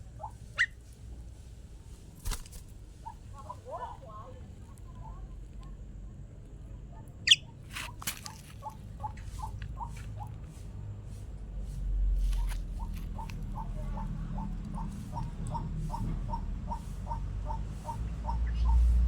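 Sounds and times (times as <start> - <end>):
starling whistled call: 7.2 - 7.5.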